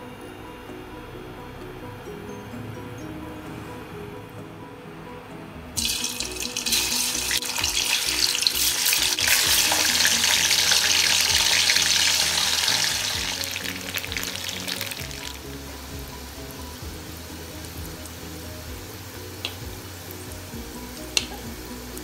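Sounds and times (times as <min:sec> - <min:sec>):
background music: 0:00.0 - 0:22.0
tofu sizzling in oil: 0:05.8 - 0:22.0.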